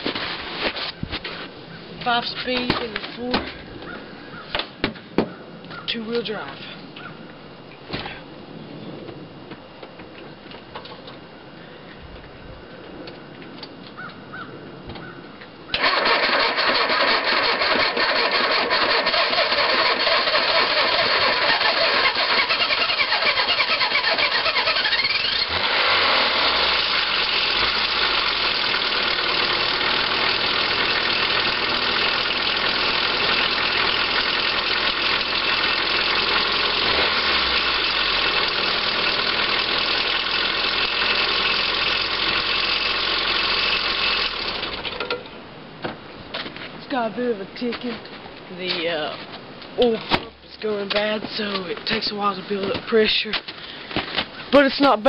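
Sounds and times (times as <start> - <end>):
pickup engine starting and idling: 15.7 - 45.2
engine ticking: 15.8 - 45.0.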